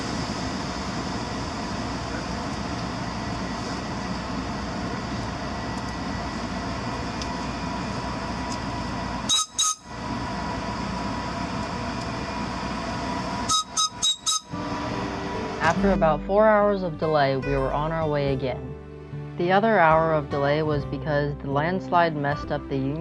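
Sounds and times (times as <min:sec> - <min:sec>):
train rolling rumble: 0:00.0 - 0:18.6
train signal horn blasts: 0:09.3 - 0:09.9, 0:13.5 - 0:14.8.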